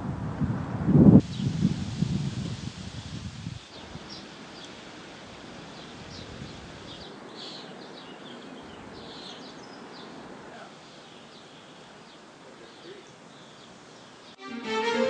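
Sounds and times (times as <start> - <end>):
outdoor background noise: 0.0 - 14.4
birds chirping: 3.6 - 14.4.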